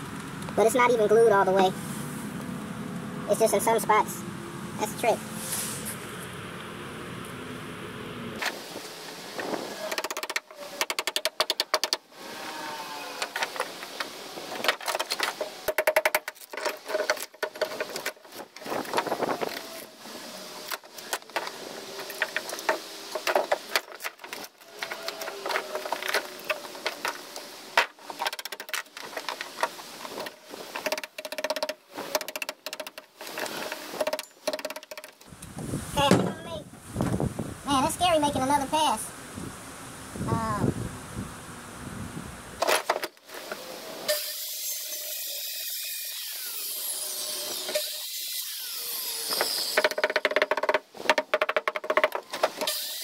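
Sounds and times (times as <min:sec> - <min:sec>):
clattering and knocking: 0:49.8 - 0:52.7.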